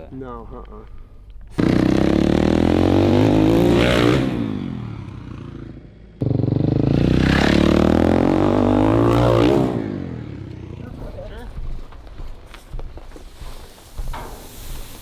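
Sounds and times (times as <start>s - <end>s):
dirt bike engine revving: 1.6s - 10.9s.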